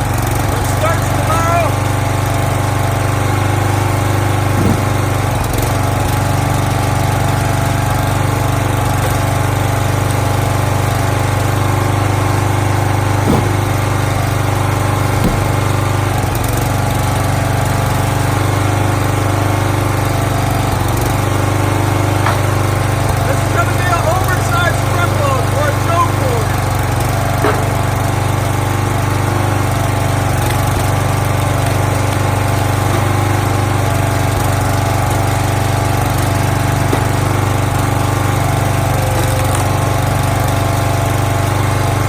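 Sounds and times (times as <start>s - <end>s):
light knocks of wood: 4.6s - 5.2s, 13.3s - 13.9s, 15.2s - 15.8s.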